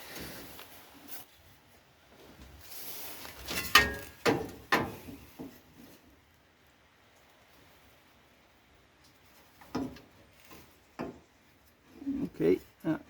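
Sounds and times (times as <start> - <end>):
metallic clicks and clunks: 3.5 - 5.5.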